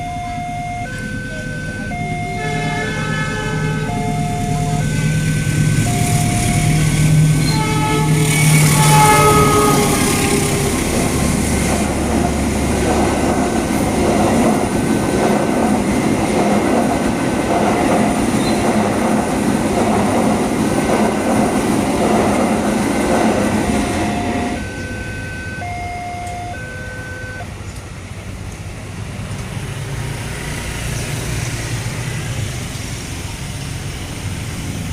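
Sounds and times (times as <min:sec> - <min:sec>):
crossing warning bell beeping: 0:00.0 - 0:16.4, 0:20.1 - 0:28.1
train wheels rumbling: 0:00.0 - 0:34.9
train horn blast: 0:02.3 - 0:12.1, 0:23.1 - 0:27.4.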